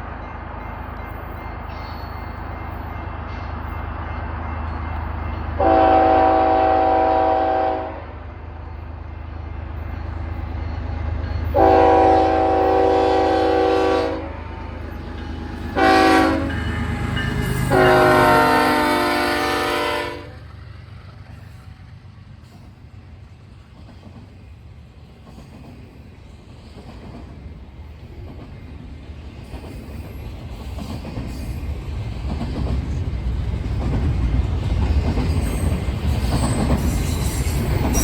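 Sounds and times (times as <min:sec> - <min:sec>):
locomotive air horn blasts: 0:05.6 - 0:08.2, 0:11.5 - 0:14.6, 0:15.7 - 0:17.1, 0:17.7 - 0:20.4.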